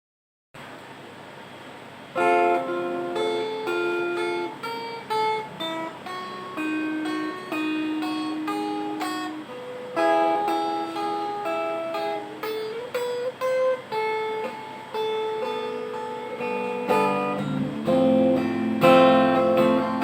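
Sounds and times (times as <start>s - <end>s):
faint hiss: 0.6s - 20.0s
guitar notes and chords: 2.1s - 20.0s.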